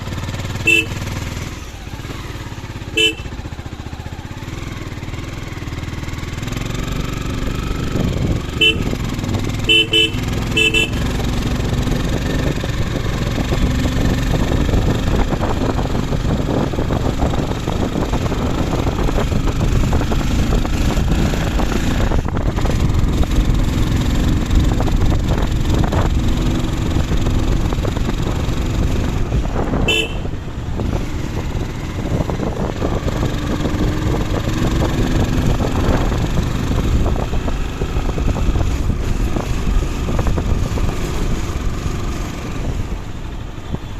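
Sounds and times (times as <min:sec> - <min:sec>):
motor vehicle running: 0:00.0 - 0:43.9
short horn beep: 0:00.6 - 0:01.1, 0:02.9 - 0:03.4, 0:08.6 - 0:09.0, 0:09.6 - 0:11.1, 0:29.9 - 0:30.3.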